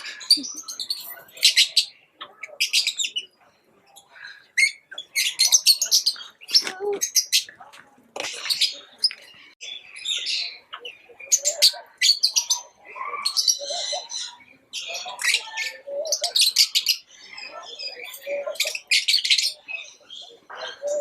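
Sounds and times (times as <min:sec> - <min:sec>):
lovebirds chirping: 0:00.0 - 0:21.0.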